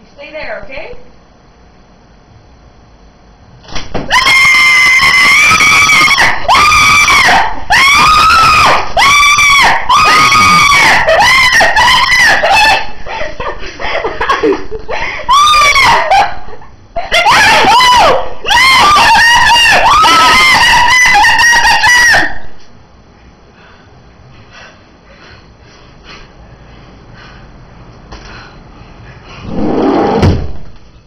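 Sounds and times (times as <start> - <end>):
person screaming: 4.1 - 12.8.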